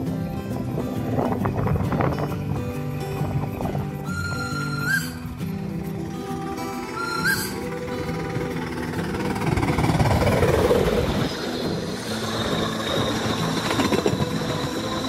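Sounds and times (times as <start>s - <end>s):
train wheels rattling over joints: 3.2s - 15.0s.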